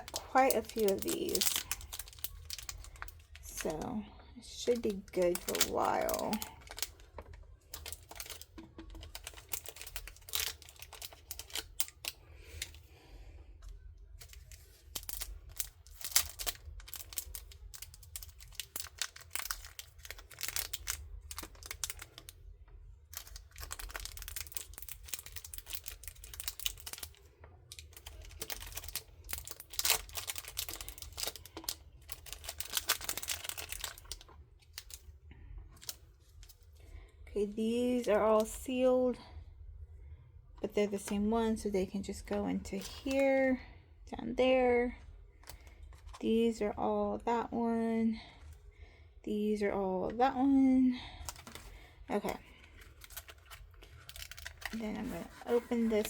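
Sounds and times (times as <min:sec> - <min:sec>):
plastic packaging crinkling: 0:00.0 - 0:36.8, 0:51.1 - 0:56.0
plastic tools clicking and tapping: 0:04.8 - 0:12.8.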